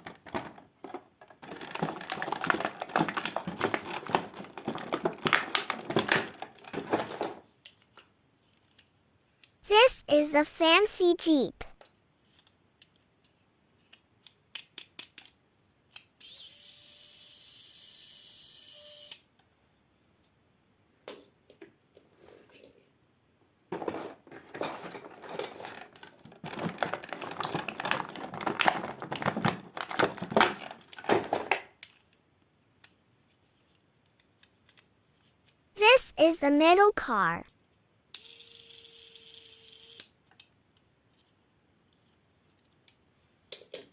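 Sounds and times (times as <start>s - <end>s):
plastic toy clicking and rattling: 0.0s - 9.5s, 11.8s - 16.1s, 23.8s - 32.2s.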